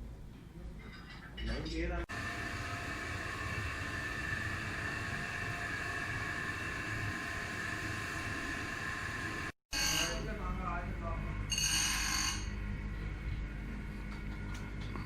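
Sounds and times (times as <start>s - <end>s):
machine hissing and whining: 2.1s - 10.8s.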